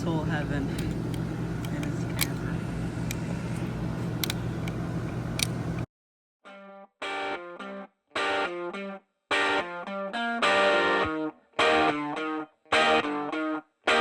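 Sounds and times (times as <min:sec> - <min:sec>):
steady hum with faint clicks: 0:00.0 - 0:05.9
guitar phrases with effects: 0:06.5 - 0:14.0.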